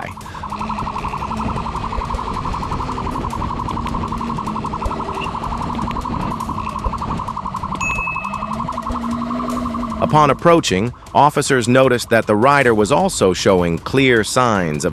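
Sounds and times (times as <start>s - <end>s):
vehicle engine running: 0.0s - 11.2s
police siren pulsing: 0.0s - 11.4s.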